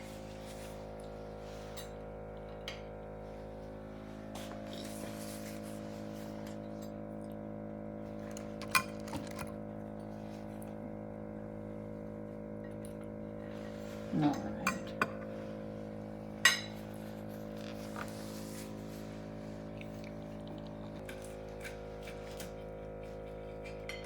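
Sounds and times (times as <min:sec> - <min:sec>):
steady background hum: 0:00.0 - 0:24.0
cutlery clinking against dishes: 0:16.4 - 0:16.8, 0:23.6 - 0:24.0.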